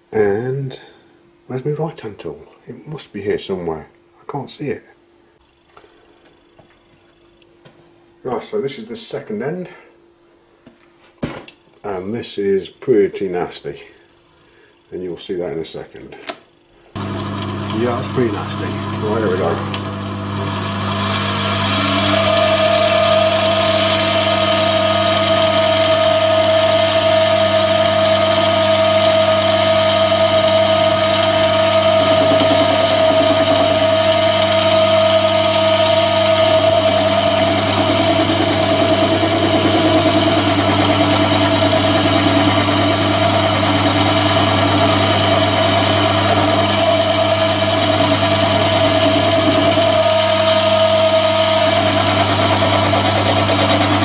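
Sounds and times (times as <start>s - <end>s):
lathe motor and gear whine: 17.0s - 54.0s.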